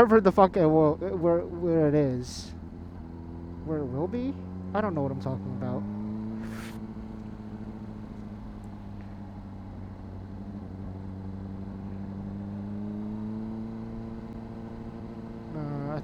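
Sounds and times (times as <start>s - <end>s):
motorcycle engine cruising: 0.0s - 16.0s
brief hiss: 6.4s - 6.8s.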